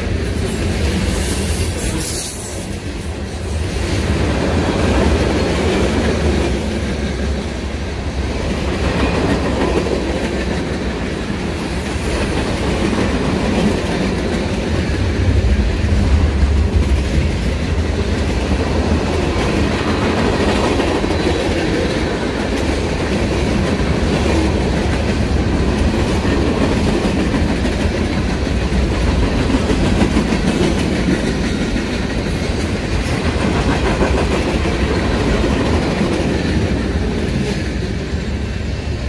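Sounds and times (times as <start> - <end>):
train wheels rumbling and clacking: 0.0 - 39.0.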